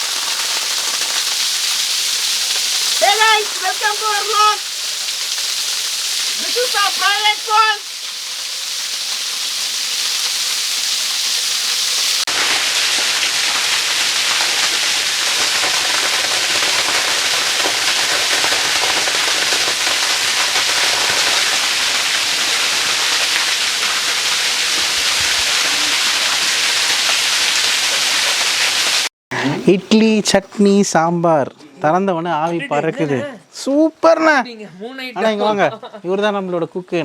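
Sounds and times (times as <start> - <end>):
waterfall pouring: 0.0 - 29.1.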